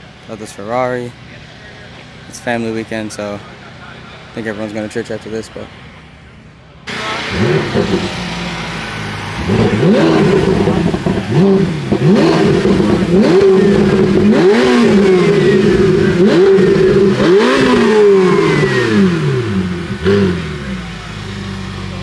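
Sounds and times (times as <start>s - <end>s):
car engine revving: 6.8s - 22.0s.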